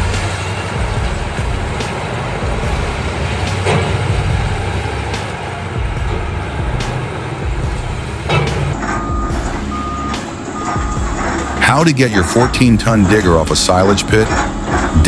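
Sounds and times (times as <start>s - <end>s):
heavy diesel machinery rumbling: 0.0s - 15.0s
reversing alarm beeping: 8.8s - 15.0s.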